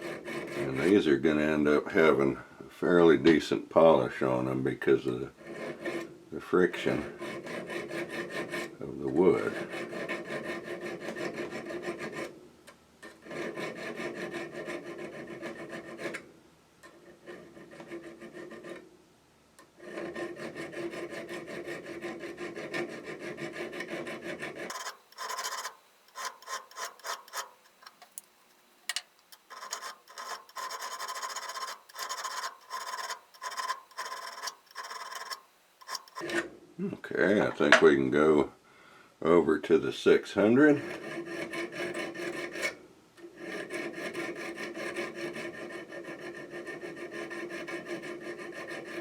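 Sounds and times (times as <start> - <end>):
diamond hone rubbing on steel: 6.8 - 12.3, 13.1 - 16.2, 16.9 - 18.8, 19.8 - 36.4, 40.8 - 49.0.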